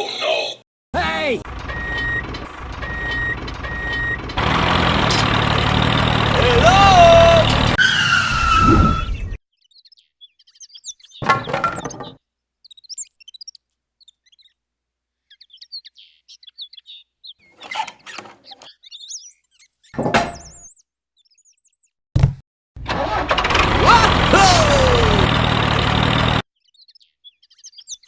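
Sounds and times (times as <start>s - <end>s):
small birds chirping: 0.2s - 7.5s, 9.0s - 22.0s, 26.5s - 28.0s
loud sound cutting off: 1.5s - 7.8s, 22.8s - 26.4s.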